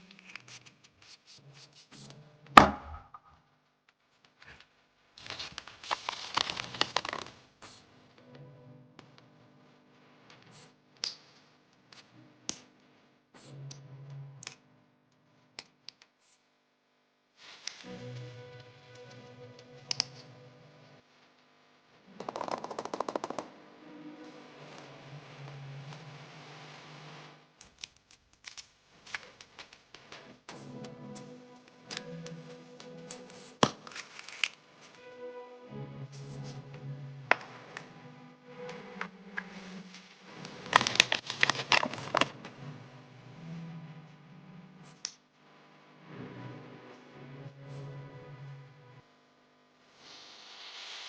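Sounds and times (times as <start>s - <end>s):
soft background music: 7.7s - 11.1s, 17.8s - 21.1s, 22.0s - 27.4s, 30.1s - 45.1s, 45.9s - 49.1s.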